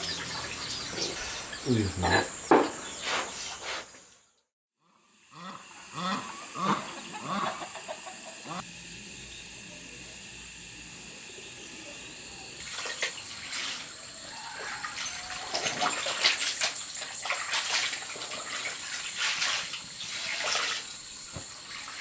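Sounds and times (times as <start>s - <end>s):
water splashing and pouring: 12.6s - 22.0s.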